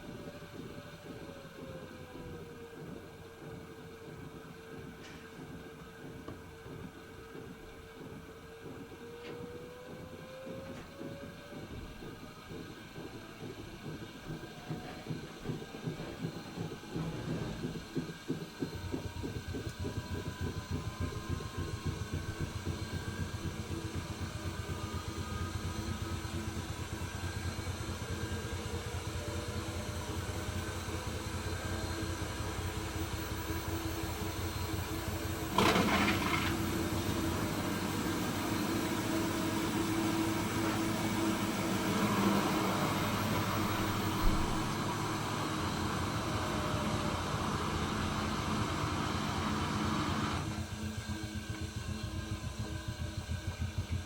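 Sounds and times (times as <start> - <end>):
motor whine: 0.0 - 54.0
washing machine drum spinning: 0.0 - 54.0.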